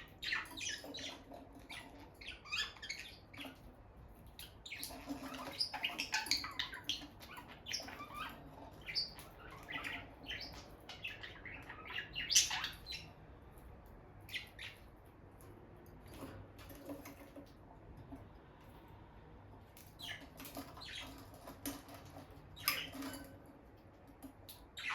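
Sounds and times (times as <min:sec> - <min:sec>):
lovebirds chirping: 0:00.0 - 0:03.7, 0:04.4 - 0:13.2, 0:14.2 - 0:15.0, 0:19.8 - 0:21.7, 0:22.4 - 0:23.4, 0:24.6 - 0:24.9.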